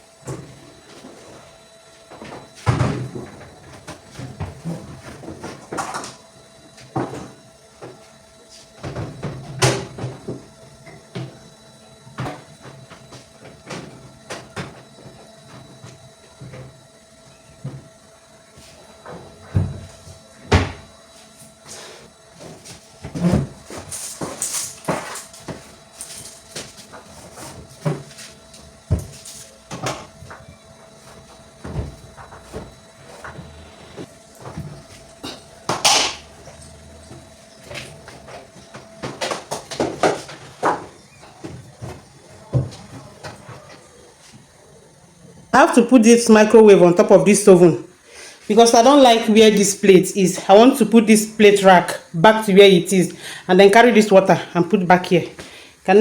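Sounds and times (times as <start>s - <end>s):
kitchen items knocking and clunking: 19.0s - 20.9s, 26.4s - 44.6s.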